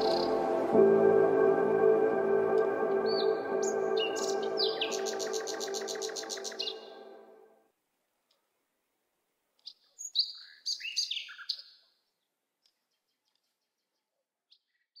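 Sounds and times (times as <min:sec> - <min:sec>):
songbird singing: 0:00.0 - 0:07.3, 0:09.6 - 0:11.8.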